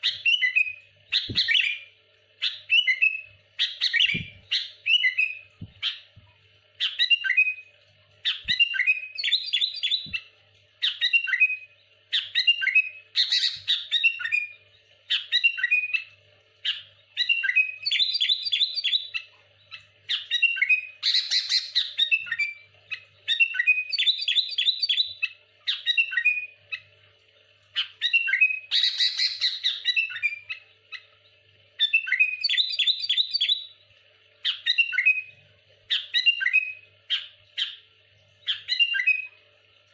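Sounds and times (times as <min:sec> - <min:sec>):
bird singing chirpy notes: 0:00.0 - 0:06.1, 0:06.8 - 0:10.2, 0:27.8 - 0:33.8, 0:38.4 - 0:39.4.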